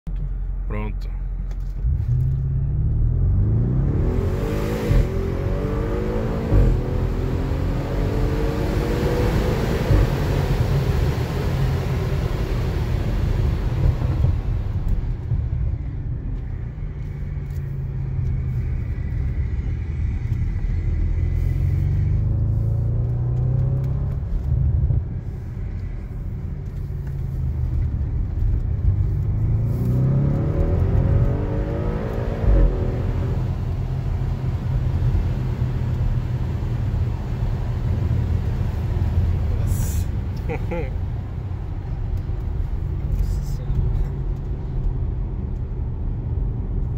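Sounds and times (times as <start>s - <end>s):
car engine revving from inside: 1.8s - 15.4s, 17.1s - 25.5s, 26.7s - 40.9s.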